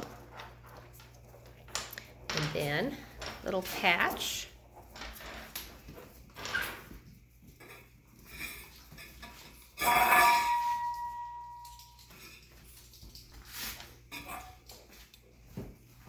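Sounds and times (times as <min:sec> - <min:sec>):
metal object clattering and ringing: 0:09.3 - 0:12.5.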